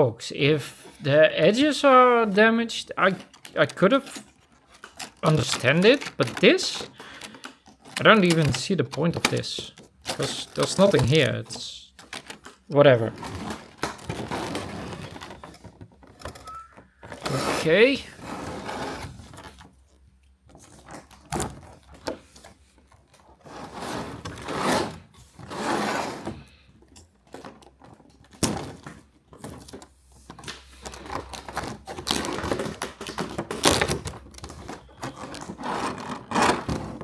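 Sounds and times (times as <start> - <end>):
plastic packaging crinkling: 1.4 - 15.8, 29.4 - 37.0.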